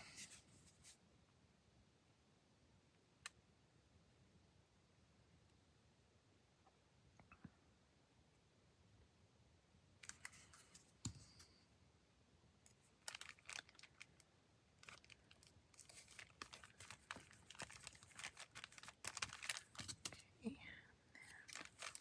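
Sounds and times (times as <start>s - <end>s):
paper rustling and crinkling: 0.0s - 1.0s, 10.0s - 11.5s, 13.0s - 14.2s, 14.8s - 20.2s, 21.2s - 22.0s.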